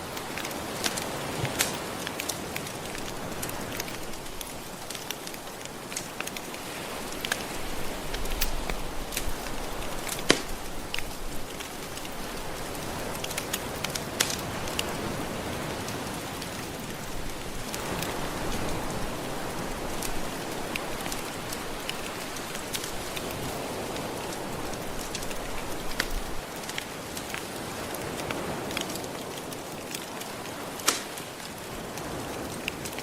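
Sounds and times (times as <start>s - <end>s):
wood fire crackling and popping: 0.0s - 13.6s
gentle ocean waves: 0.0s - 33.0s.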